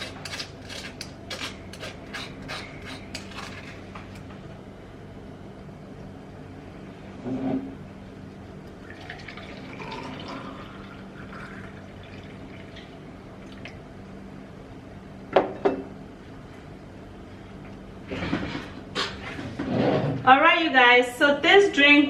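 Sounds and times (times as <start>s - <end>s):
juice pouring into container: 8.7s - 13.7s.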